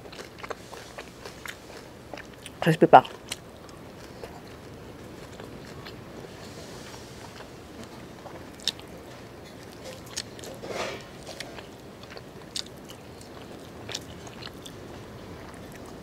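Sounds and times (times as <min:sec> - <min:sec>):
person chewing meat off bone: 0:00.0 - 0:16.0.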